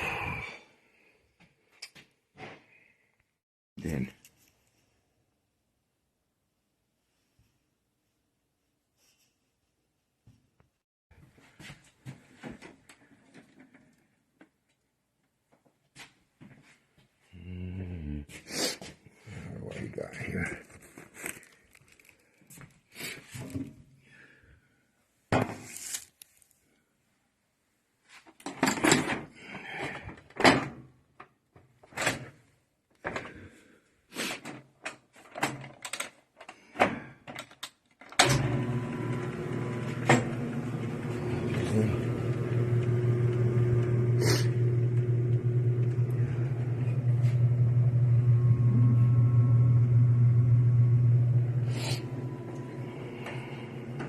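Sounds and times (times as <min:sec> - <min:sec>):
electric motor hum: 0:38.2 - 0:54.0.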